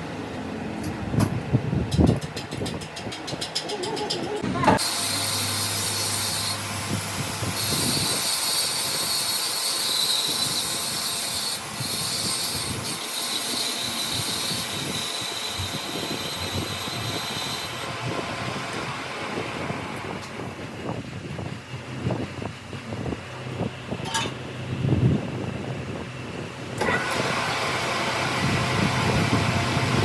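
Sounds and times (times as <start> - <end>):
high-pitched hissing of metalwork: 4.8 - 17.8.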